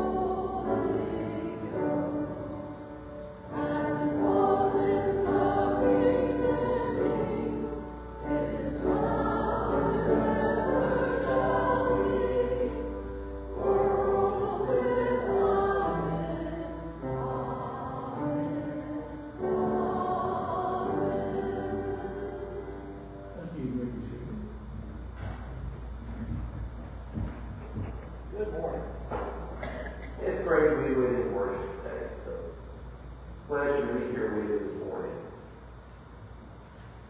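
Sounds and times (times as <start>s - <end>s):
choir singing a hymn: 0.0s - 24.2s.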